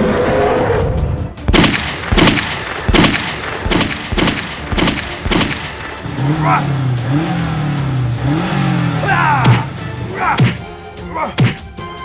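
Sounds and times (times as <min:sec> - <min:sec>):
sharp gunshot-like bangs: 0:01.5 - 0:05.8.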